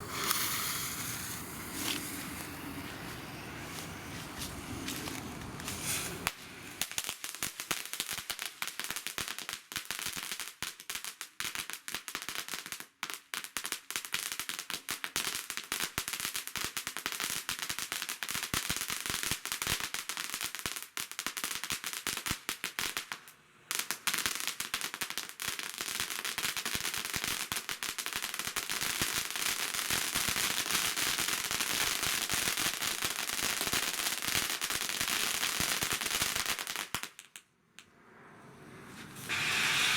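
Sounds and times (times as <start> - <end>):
fountain firework crackling: 0.0 - 8.0, 28.4 - 37.2, 38.5 - 39.9.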